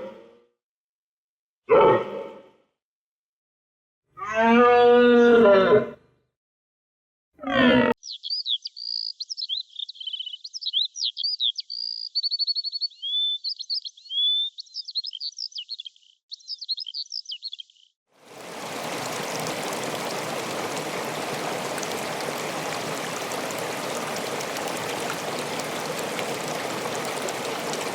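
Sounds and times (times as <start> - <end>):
songbird singing: 8.0 - 27.9
running water: 18.2 - 27.9.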